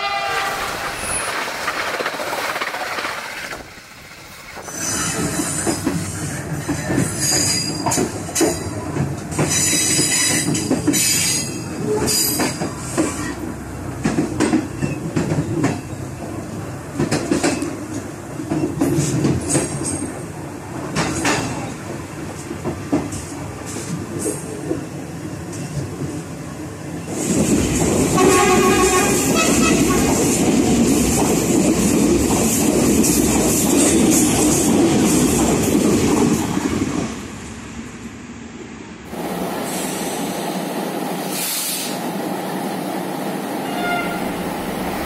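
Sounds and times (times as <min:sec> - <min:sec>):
train low rumble: 0:00.0 - 0:45.0
wheels clacking over rail joints: 0:00.1 - 0:26.2.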